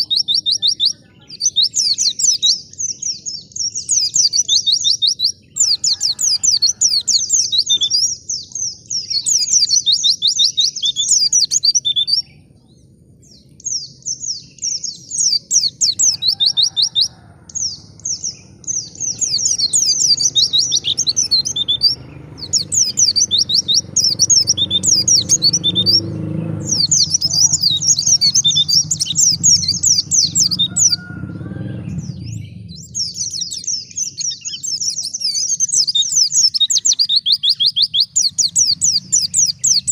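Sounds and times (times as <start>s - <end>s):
bird twittering song: 0.0s - 39.9s
faint low rumble: 26.6s - 35.6s.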